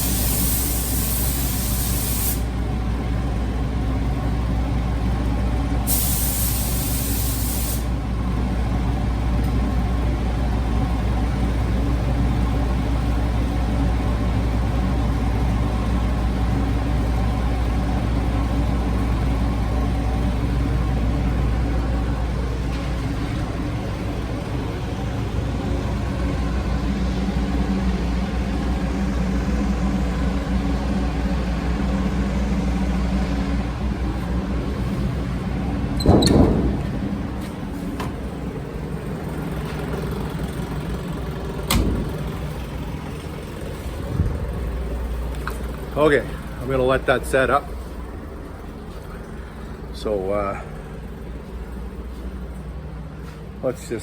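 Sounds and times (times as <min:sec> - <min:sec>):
paint spray gun hissing: 0:00.0 - 0:02.5, 0:05.9 - 0:07.9
low machine hum: 0:00.0 - 0:54.0.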